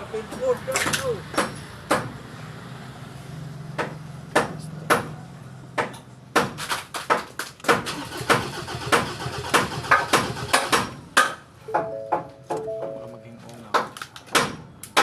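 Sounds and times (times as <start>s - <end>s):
engine starter humming: 7.9s - 10.8s
sharp knocks: 13.7s - 15.0s.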